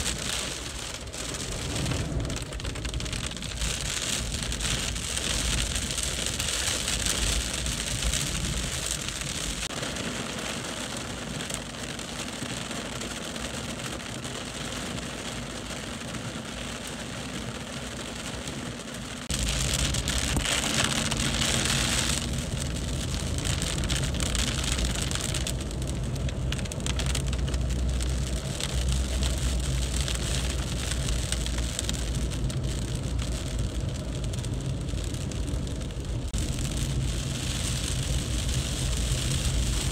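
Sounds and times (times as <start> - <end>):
deep rumble: 0.0 - 9.7, 18.7 - 39.9
heavy rain pouring: 0.0 - 39.9.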